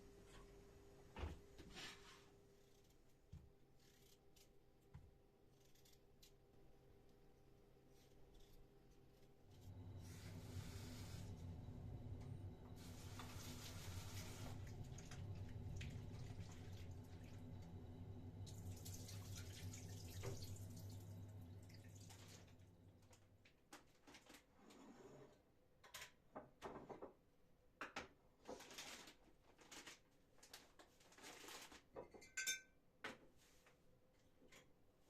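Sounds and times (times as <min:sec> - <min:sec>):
water dripping and splashing: 0:14.6 - 0:17.5, 0:18.4 - 0:22.5
ringing clink: 0:32.2 - 0:32.7.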